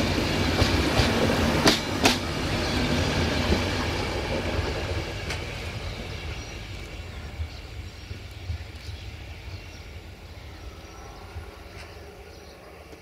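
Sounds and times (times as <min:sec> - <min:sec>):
train wheels clacking on rail joints: 0:00.0 - 0:05.8
train rumble: 0:00.0 - 0:13.0.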